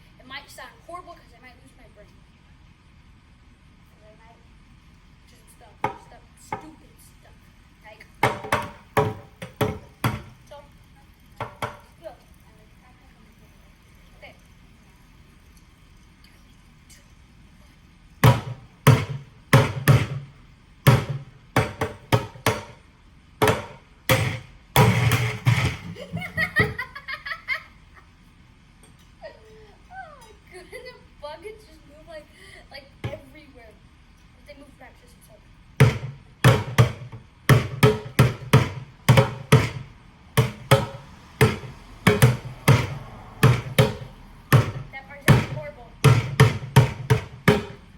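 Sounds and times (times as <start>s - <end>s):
sticks hitting buckets: 8.2s - 10.4s, 11.4s - 11.9s, 18.2s - 20.3s, 20.9s - 22.8s, 23.4s - 26.9s, 35.8s - 47.9s.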